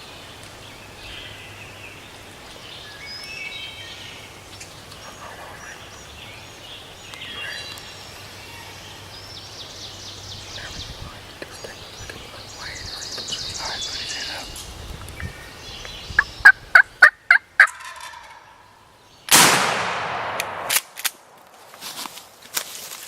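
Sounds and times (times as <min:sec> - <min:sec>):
turkey gobbling: 0:16.4 - 0:18.5
shotgun blast echoing: 0:19.3 - 0:21.4.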